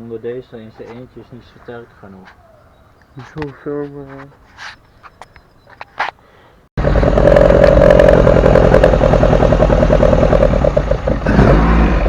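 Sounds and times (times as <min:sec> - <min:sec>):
car engine starting and running: 0:06.8 - 0:12.0.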